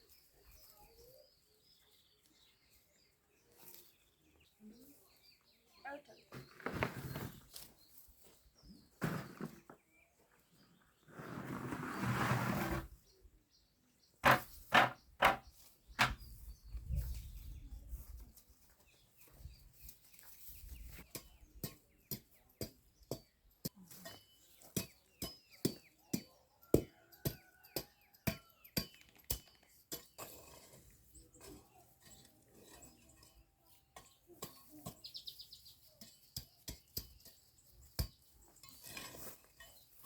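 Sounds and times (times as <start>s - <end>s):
birds chirping: 0.0s - 11.1s, 13.0s - 40.0s
sharp knocks: 14.2s - 15.4s.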